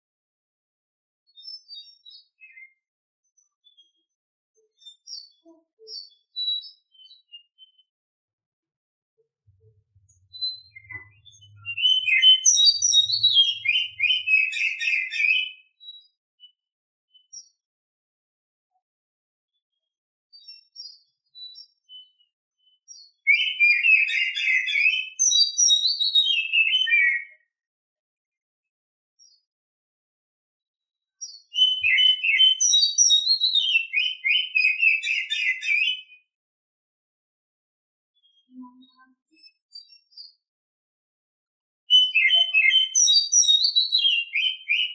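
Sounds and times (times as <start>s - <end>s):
bird singing whistles and chirps: 1.3s - 7.9s, 10.0s - 17.6s, 20.4s - 27.5s, 31.2s - 36.3s, 38.2s - 40.4s, 41.9s - 44.9s
bird singing high notes: 10.4s - 15.1s.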